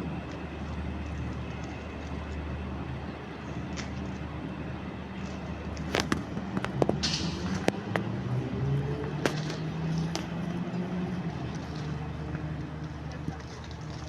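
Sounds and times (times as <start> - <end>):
ship engine drone: 0.0 - 14.0
sharp clicks and knocks: 5.8 - 8.1.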